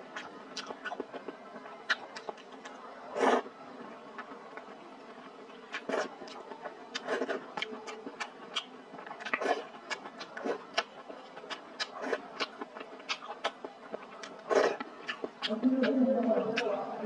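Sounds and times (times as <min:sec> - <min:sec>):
wet chewing and lip smacks: 0:00.1 - 0:02.8, 0:05.7 - 0:16.0.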